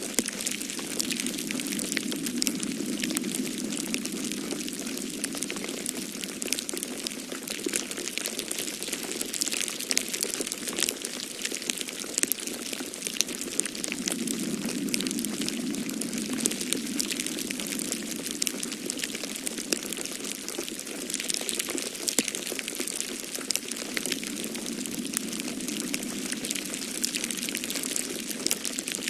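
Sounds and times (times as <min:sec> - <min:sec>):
snowstorm wind rushing: 0:00.0 - 0:07.2, 0:13.2 - 0:20.2, 0:23.7 - 0:29.0
wood fire crackling and popping: 0:00.0 - 0:29.0.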